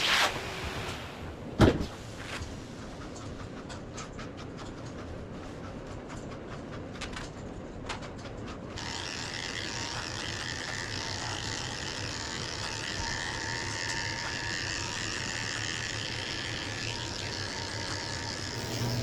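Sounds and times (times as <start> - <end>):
electric clippers cutting dog coat: 8.8 - 19.0.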